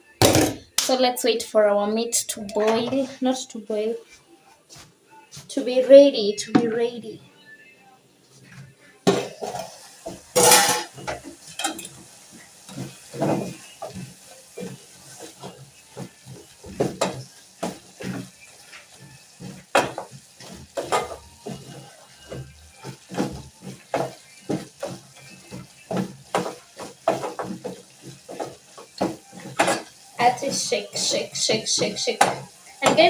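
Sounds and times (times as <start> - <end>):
pots and utensils clattering: 0.1 - 0.8, 9.1 - 33.0.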